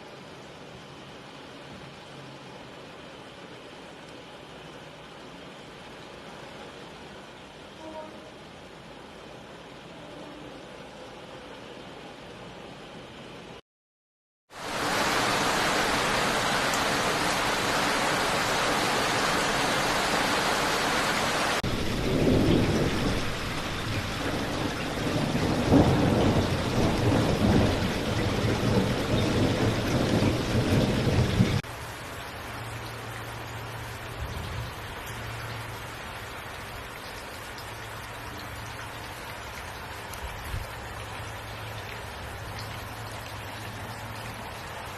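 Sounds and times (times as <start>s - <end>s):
heavy rain hissing: 14.5s - 37.0s.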